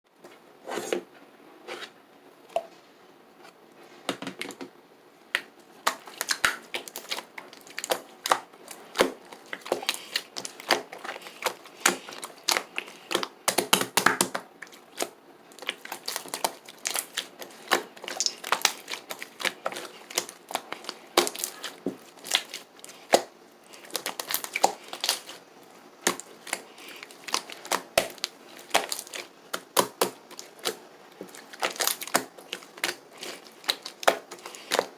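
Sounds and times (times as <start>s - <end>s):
slime squished by hand: 5.4s - 34.9s.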